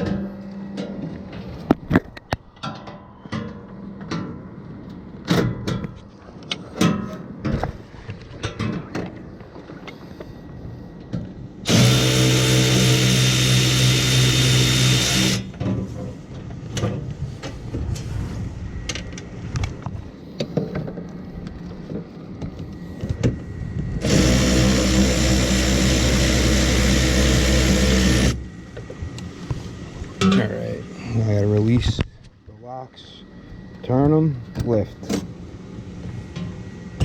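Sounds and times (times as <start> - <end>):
cordless drill running: 11.7 - 15.5, 24.0 - 28.4.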